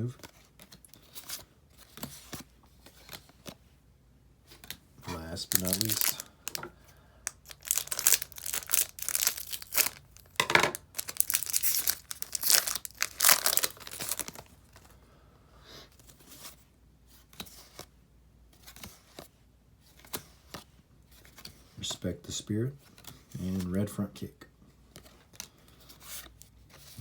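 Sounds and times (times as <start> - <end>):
plastic wrapper tearing and crinkling: 5.1 - 14.9.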